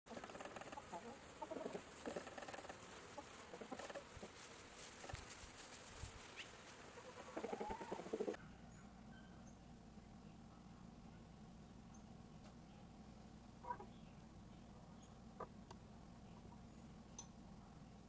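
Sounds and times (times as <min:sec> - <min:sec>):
chickens clucking: 0:00.1 - 0:08.8, 0:13.5 - 0:14.2, 0:15.0 - 0:16.9.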